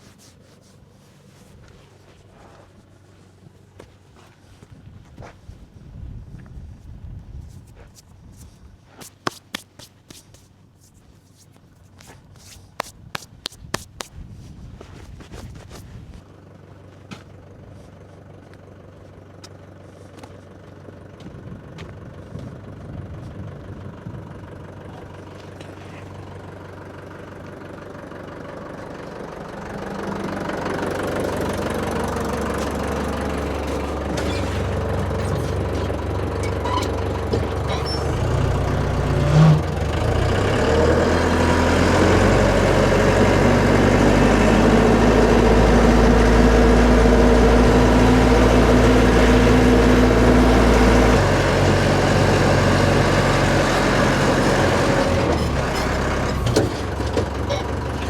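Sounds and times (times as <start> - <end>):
vehicle engine running: 14.7 - 58.0.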